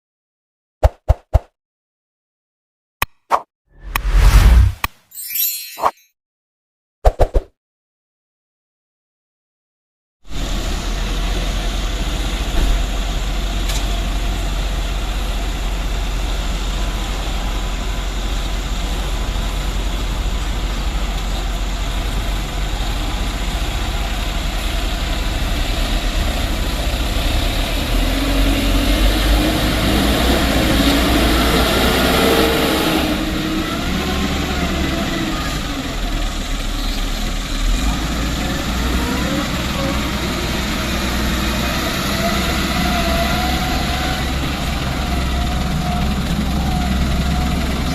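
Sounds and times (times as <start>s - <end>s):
heavy vehicle engine running: 10.3s - 47.9s.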